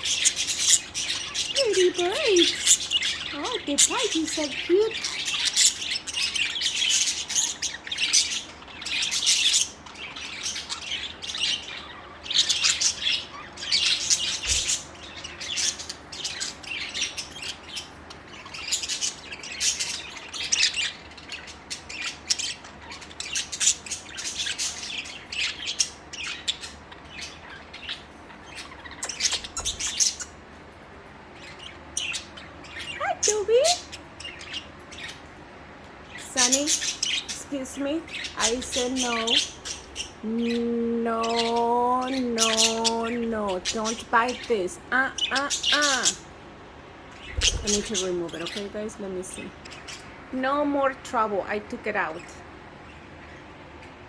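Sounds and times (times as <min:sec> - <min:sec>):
budgerigars chattering: 0:00.0 - 0:30.4, 0:31.4 - 0:35.3, 0:36.1 - 0:46.4, 0:47.0 - 0:52.5.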